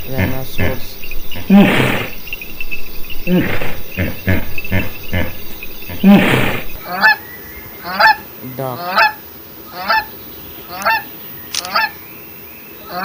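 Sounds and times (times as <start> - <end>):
dinosaur growling roars: 0.0 - 2.2, 3.1 - 6.8
insect-like chirring: 0.0 - 7.2, 9.2 - 12.0.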